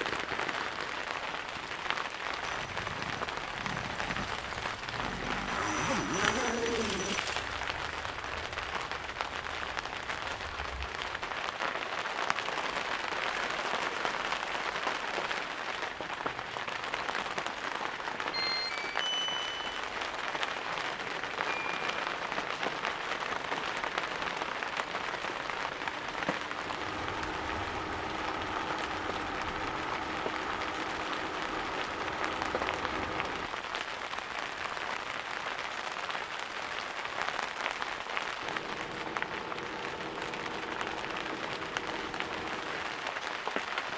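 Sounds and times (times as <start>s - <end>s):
steady rain: 0.0s - 43.9s
high chirps: 18.4s - 20.3s
steady hum: 38.4s - 42.9s.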